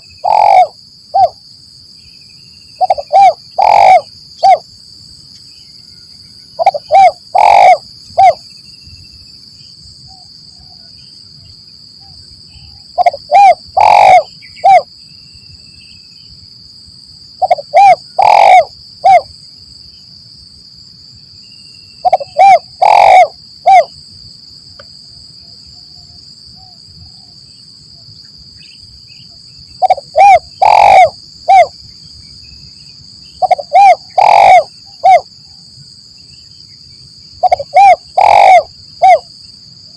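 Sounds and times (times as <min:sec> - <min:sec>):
dove cooing: 0:00.0 - 0:01.4, 0:02.8 - 0:04.6, 0:06.6 - 0:08.4, 0:13.0 - 0:14.9, 0:17.4 - 0:19.3, 0:22.0 - 0:23.9, 0:29.8 - 0:31.7, 0:33.4 - 0:35.3, 0:37.4 - 0:39.3.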